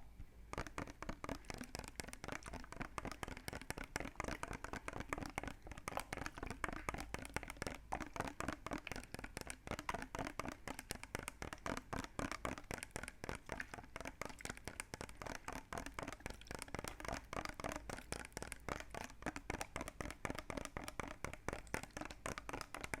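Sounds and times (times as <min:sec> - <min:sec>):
rapid wet clicking: 0:00.5 - 0:23.0.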